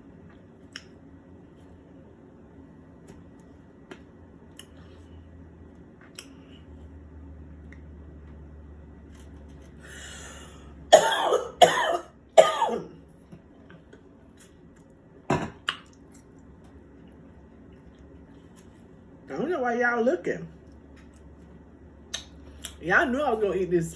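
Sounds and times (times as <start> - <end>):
person coughing: 10.9 - 13.0.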